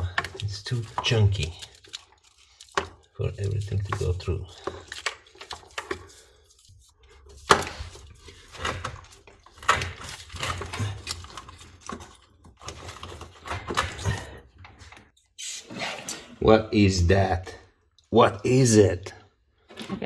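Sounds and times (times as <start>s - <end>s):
wiring harness rustling: 0.0s - 15.8s.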